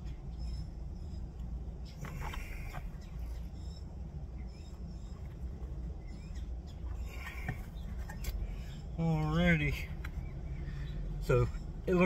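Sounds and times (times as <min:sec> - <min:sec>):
faint bird chirps: 0:00.0 - 0:12.0
steady low background hum: 0:00.0 - 0:12.0.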